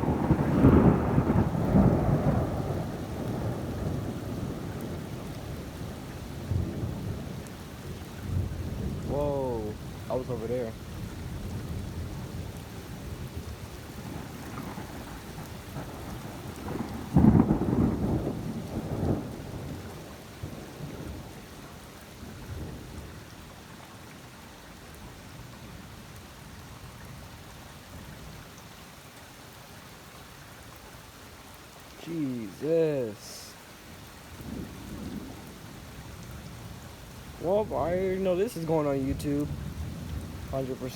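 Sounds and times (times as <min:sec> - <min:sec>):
thunder clap and rumble: 0:00.0 - 0:07.5, 0:11.0 - 0:21.4, 0:34.4 - 0:40.9
steady rain: 0:00.0 - 0:40.9.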